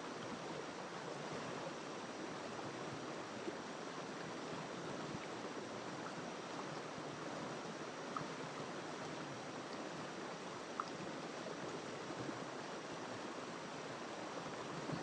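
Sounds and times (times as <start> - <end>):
river water flowing over rocks: 0.0 - 15.0
faint ticks: 8.0 - 8.4, 10.7 - 11.0.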